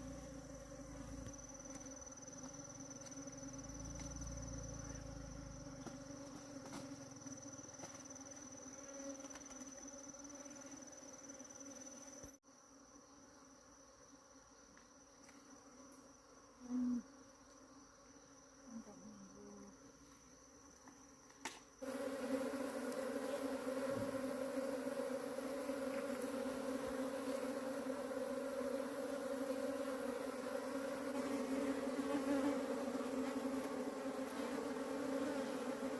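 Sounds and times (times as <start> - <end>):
high insect trill: 0.0 - 35.9
bees buzzing: 21.8 - 35.9.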